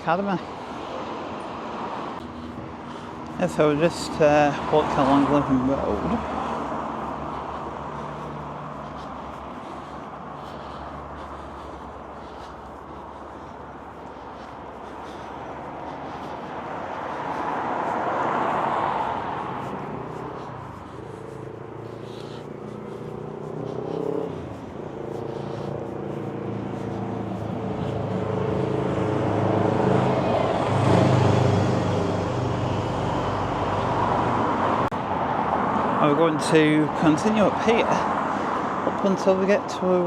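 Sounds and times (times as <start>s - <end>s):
car passing: 0.0s - 40.0s
road traffic: 0.0s - 40.0s
vehicle engine revving: 17.2s - 34.8s.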